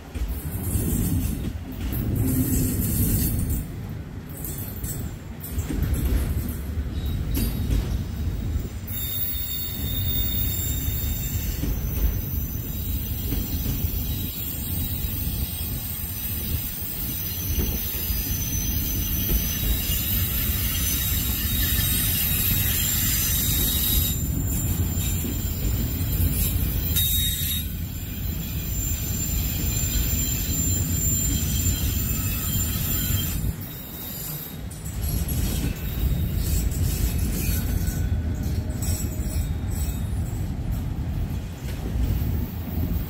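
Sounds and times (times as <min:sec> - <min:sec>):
train wheels rumbling on rail: 0:00.0 - 0:43.0
high-pitched wheel squeals: 0:08.9 - 0:40.3.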